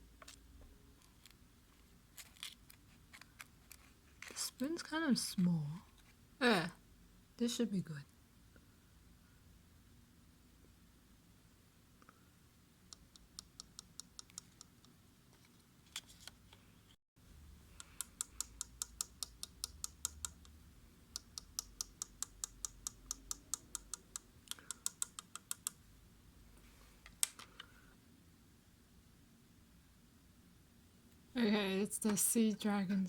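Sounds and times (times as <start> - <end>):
small spoon tapping rapidly: 17.8 - 20.6.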